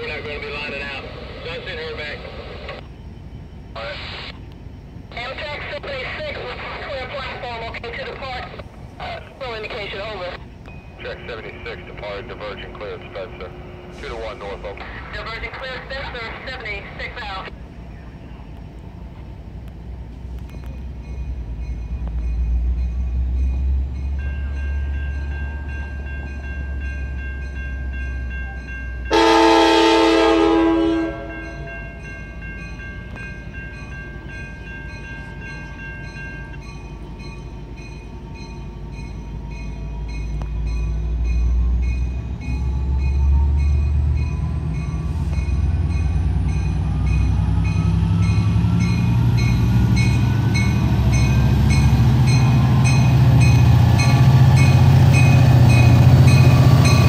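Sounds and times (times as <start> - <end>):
diesel locomotive rumble: 0.0 - 57.0
train horn blast: 29.1 - 31.6.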